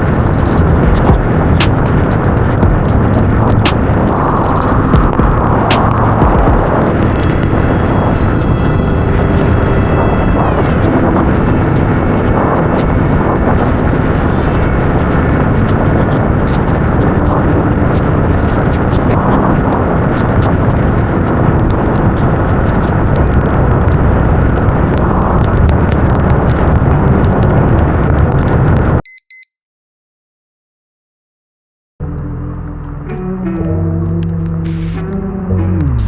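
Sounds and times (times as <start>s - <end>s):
sharp clicks: 0.0s - 6.5s
wind rush on microphone: 0.0s - 29.0s.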